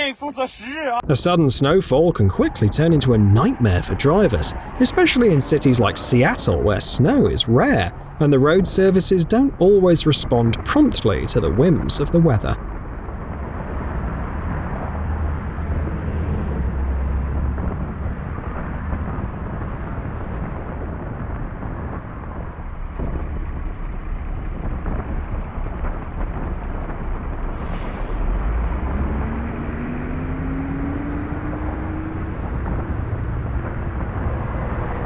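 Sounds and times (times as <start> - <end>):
car engines: 1.0 - 13.0
road noise: 1.0 - 13.0.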